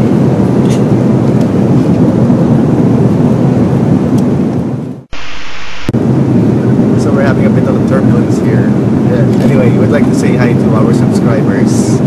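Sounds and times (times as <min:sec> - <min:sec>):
aircraft cabin engine rumble: 0:00.0 - 0:12.0
bright hiss: 0:05.1 - 0:05.9.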